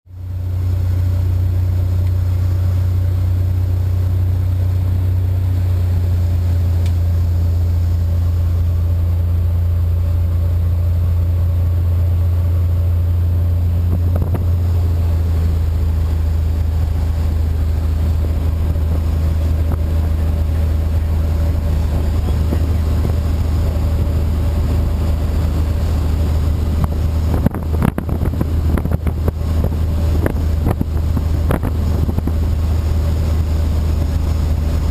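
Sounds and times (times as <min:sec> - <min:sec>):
propeller plane engine droning: 0:00.1 - 0:34.9
wind noise: 0:13.6 - 0:34.9.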